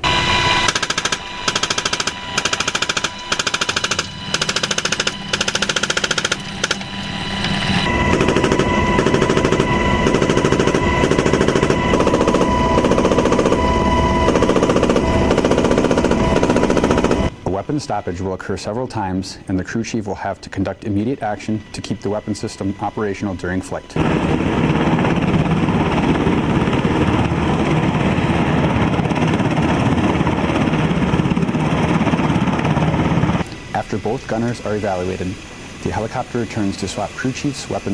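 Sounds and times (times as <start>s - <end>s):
helicopter rotor and turbine: 0.0s - 37.9s
machine gun firing burst: 0.7s - 6.8s, 8.1s - 13.6s.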